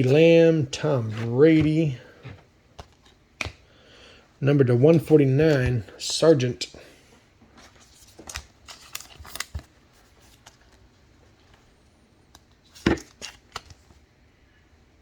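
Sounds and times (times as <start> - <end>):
cards rustling and tapping: 0.0 - 3.7, 7.5 - 11.7, 12.3 - 14.0.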